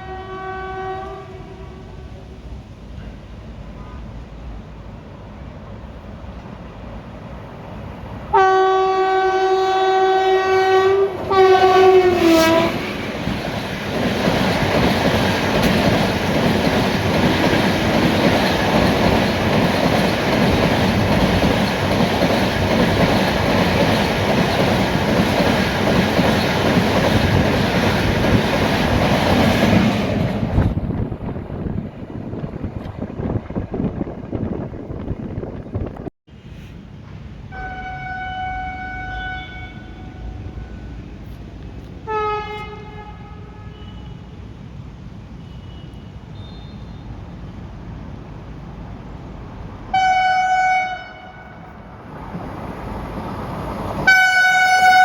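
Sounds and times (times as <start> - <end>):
train horn blasts: 0.0 - 2.2, 3.6 - 4.2, 8.3 - 13.1, 37.5 - 41.0, 42.0 - 44.4, 49.9 - 51.8, 54.0 - 55.0
train coaches rushing past: 0.8 - 43.2, 44.4 - 55.0.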